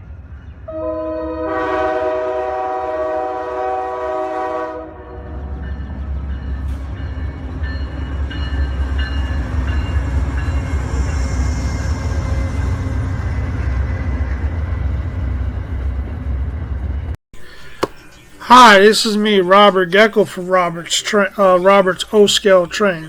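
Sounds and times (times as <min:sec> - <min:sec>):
model train rumbling: 0:00.0 - 0:17.2.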